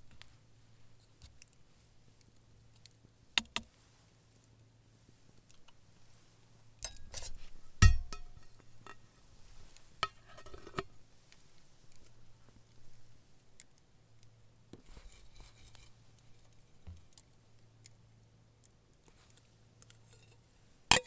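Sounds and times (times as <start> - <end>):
cookware clinking and knocking: 7.8 - 8.5.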